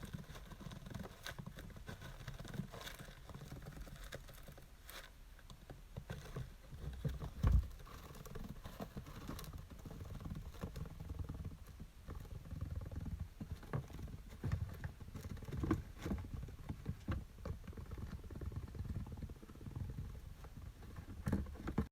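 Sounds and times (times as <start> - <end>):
rodent scratching in sawdust: 0.0 - 5.2
thump: 7.4 - 7.7.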